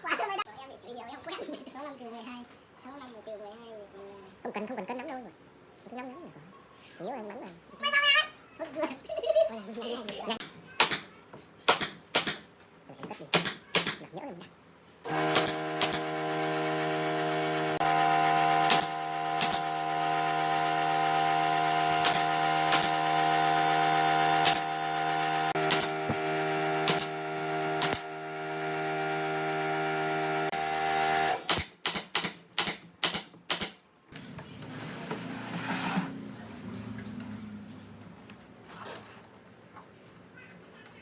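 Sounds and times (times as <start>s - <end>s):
nail gun shots: 10.4s - 12.5s, 13.3s - 14.0s, 15.1s - 16.4s, 18.5s - 19.8s, 21.9s - 23.2s, 24.4s - 24.8s, 25.5s - 28.2s, 31.3s - 33.8s.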